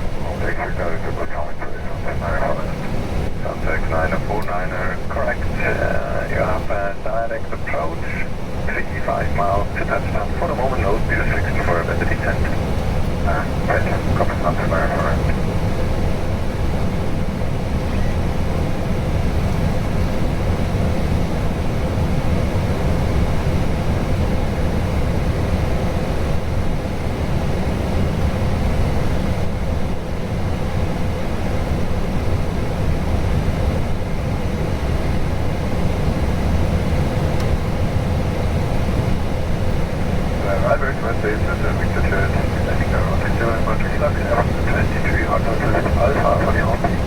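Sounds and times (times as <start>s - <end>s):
low rushing cockpit noise: 0.0s - 26.5s, 27.2s - 47.0s
faint steady tone: 40.4s - 47.0s.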